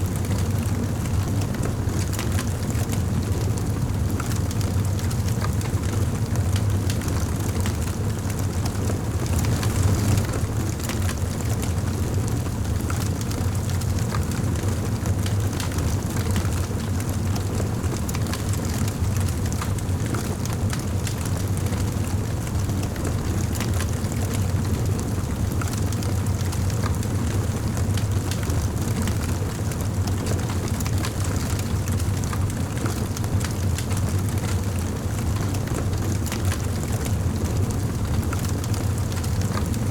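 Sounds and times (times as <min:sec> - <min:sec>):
low rumble of fire: 0:00.0 - 0:39.9
wood fire crackling and popping: 0:04.2 - 0:22.3, 0:28.0 - 0:39.9.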